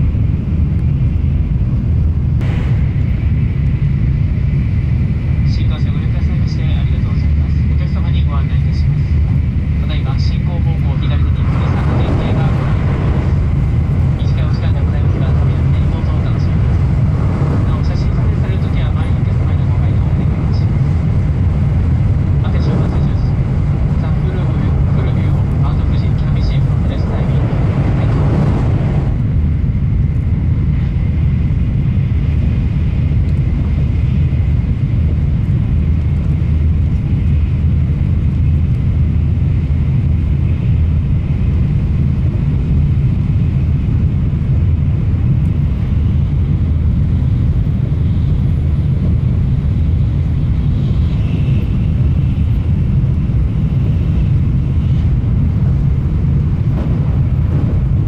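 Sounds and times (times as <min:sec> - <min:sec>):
train interior rumble: 0:00.0 - 0:58.0
faint high whine: 0:09.8 - 0:31.0, 0:47.2 - 0:58.0.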